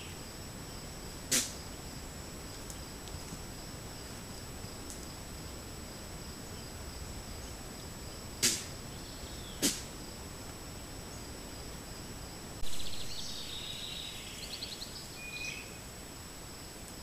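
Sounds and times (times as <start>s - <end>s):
recording hiss and high whine: 0.0s - 17.0s
sharp click: 1.3s - 1.5s, 8.4s - 8.7s
songbirds singing: 6.4s - 10.0s, 12.6s - 15.8s.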